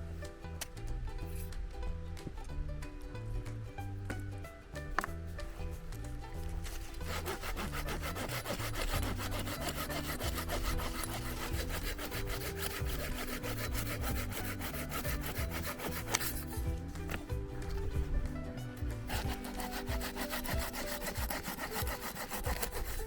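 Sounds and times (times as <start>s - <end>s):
background music: 0.0s - 23.0s
hand saw cutting wood: 6.3s - 23.0s.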